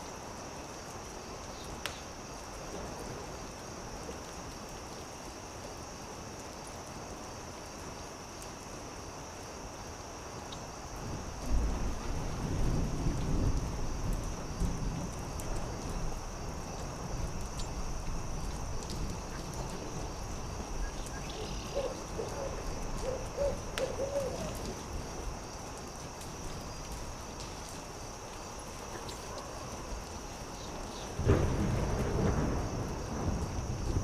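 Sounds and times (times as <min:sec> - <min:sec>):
campfire crackling and popping: 0:13.2 - 0:34.0
owl hooting: 0:21.1 - 0:24.6.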